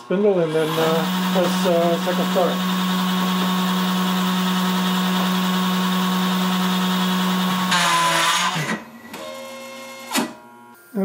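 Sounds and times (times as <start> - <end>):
mill spindle running: 0.0 - 10.4.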